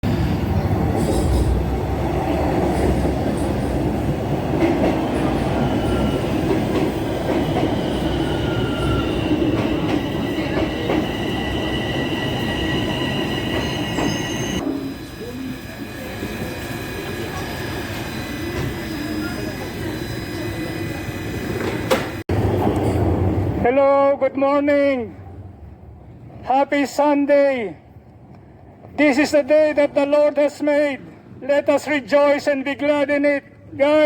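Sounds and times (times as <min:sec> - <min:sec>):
train wheels rumbling on rails: 0:00.0 - 0:23.6
high wheel squeal: 0:07.7 - 0:21.4.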